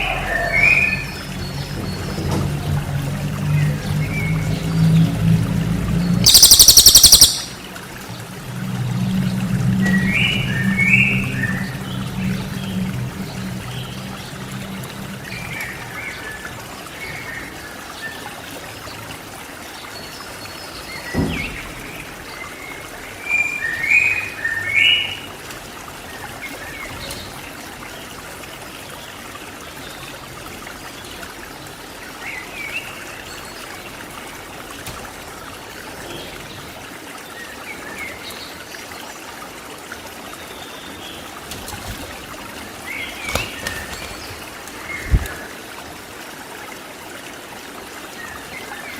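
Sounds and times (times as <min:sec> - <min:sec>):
running water trickling: 0:00.0 - 0:48.9
songbird chirping calls: 0:06.2 - 0:07.7.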